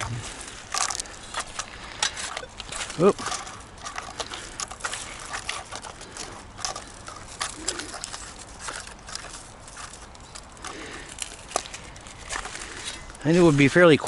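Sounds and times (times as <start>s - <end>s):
faint clicks and crackles: 0.0s - 14.0s
low cooing bird call: 7.4s - 8.2s.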